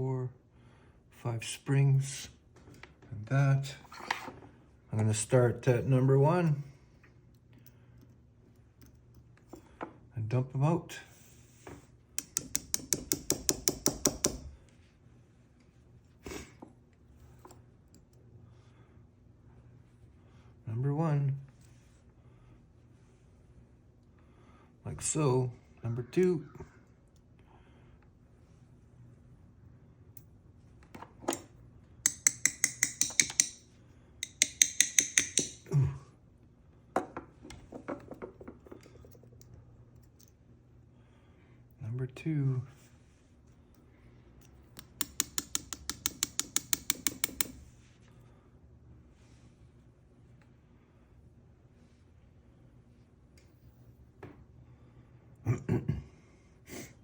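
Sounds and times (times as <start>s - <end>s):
sharp metallic taps: 12.2s - 14.5s, 32.0s - 33.6s, 34.2s - 35.6s, 44.8s - 47.6s.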